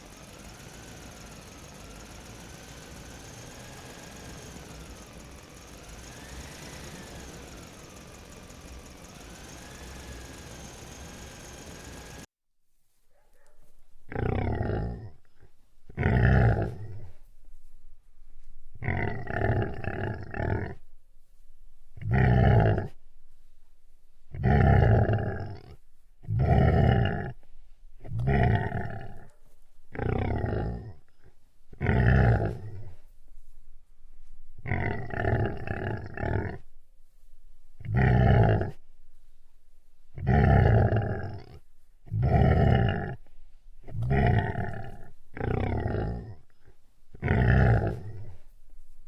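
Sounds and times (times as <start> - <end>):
large animal deep calls: 0.0 - 12.3, 14.1 - 17.2, 18.8 - 20.9, 22.0 - 23.0, 24.3 - 33.1, 34.5 - 36.8, 37.8 - 38.9, 40.1 - 48.5.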